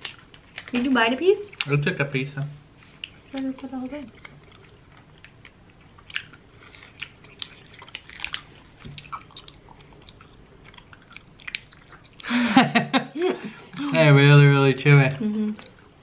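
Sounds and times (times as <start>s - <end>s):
person chewing sticky candy: 0.0s - 0.7s, 2.8s - 12.4s.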